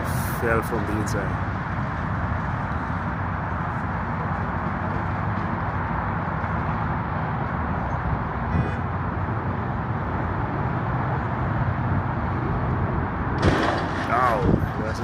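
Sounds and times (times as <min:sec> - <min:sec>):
traffic: 0:00.0 - 0:15.0
wind buffeting microphone: 0:11.8 - 0:15.0.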